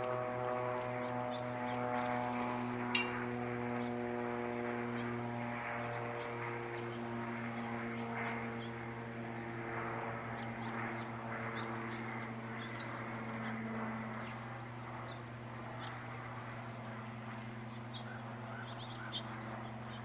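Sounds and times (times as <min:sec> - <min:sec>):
steady low hum: 0:00.0 - 0:20.0
birds chirping: 0:00.6 - 0:20.0.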